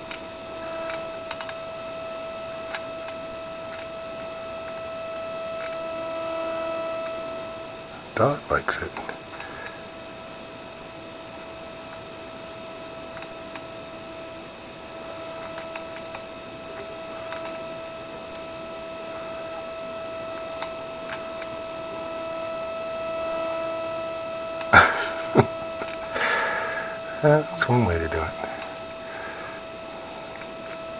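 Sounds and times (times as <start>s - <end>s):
steady electrical hum: 0.0s - 30.9s.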